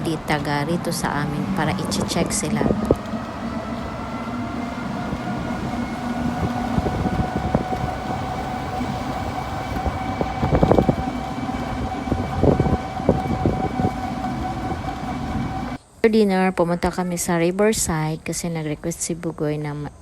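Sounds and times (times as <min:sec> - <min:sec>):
road rumble: 0:00.0 - 0:15.8
steady high whine: 0:00.0 - 0:15.8.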